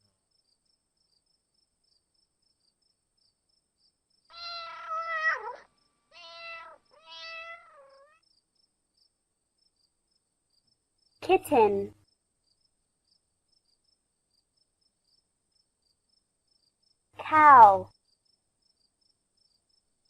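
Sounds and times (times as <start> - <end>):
cat meowing: 4.3 - 8.2.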